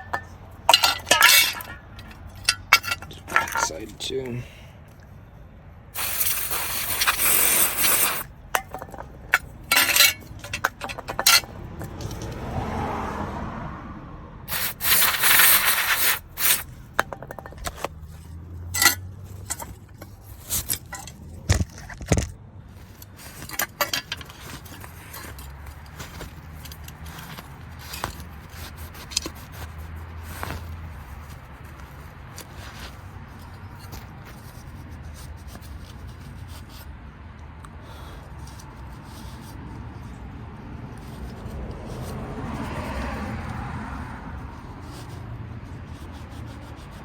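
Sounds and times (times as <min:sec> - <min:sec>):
scraping: 0:00.0 - 0:04.4, 0:06.0 - 0:12.5, 0:14.5 - 0:36.4
aerosol spray hissing: 0:06.0 - 0:08.2, 0:14.5 - 0:16.6.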